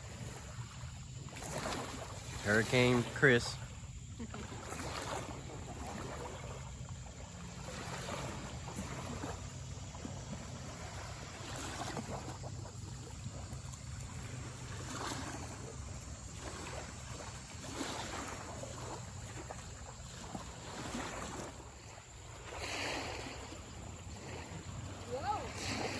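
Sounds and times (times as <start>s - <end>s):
water lapping against boat hull: 0.0s - 25.9s.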